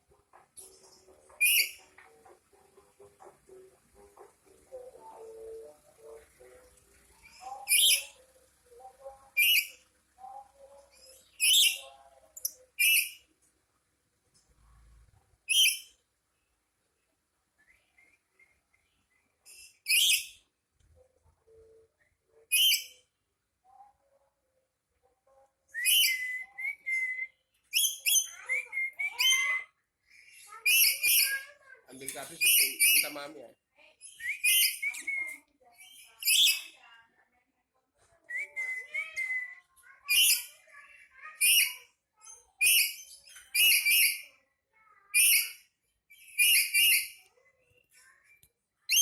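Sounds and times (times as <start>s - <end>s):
parrot shrill harsh calls: 30.6s - 31.4s, 32.4s - 33.2s, 34.0s - 35.0s, 42.6s - 44.3s, 46.2s - 47.2s.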